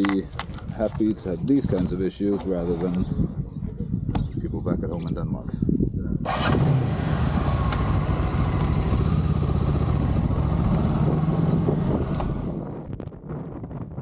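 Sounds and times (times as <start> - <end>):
motorcycle engine running: 6.3 - 12.8.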